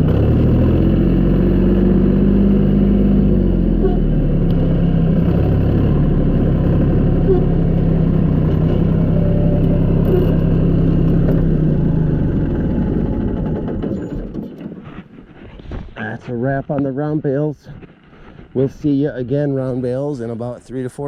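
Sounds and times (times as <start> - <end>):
vehicle engine running steadily: 0.0 - 16.1.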